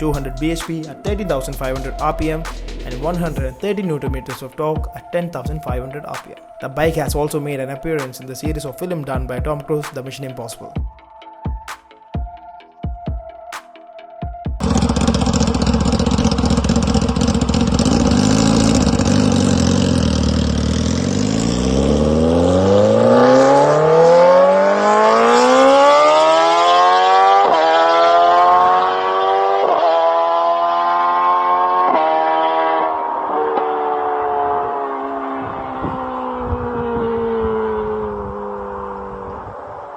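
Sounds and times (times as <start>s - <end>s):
motorcycle engine accelerating: 14.6s - 39.9s.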